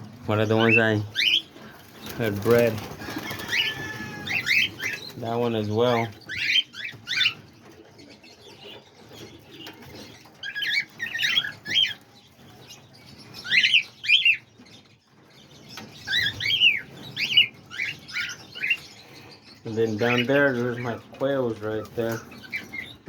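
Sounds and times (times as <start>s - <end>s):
parrots chirping: 0.0s - 23.0s.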